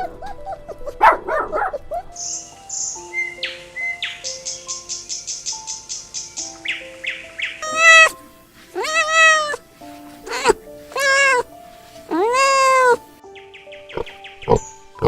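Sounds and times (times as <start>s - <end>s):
background music: 0.0s - 15.0s
cat meowing: 7.6s - 8.2s, 8.8s - 9.6s, 10.2s - 11.5s, 12.1s - 13.1s.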